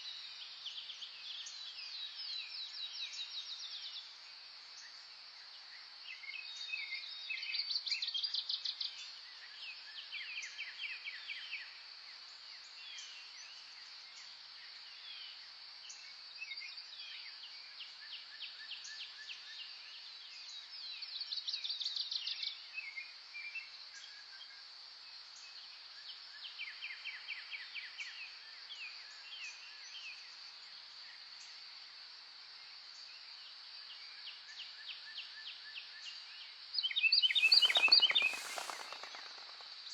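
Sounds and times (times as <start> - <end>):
wild birds singing trills: 36.8 - 39.9.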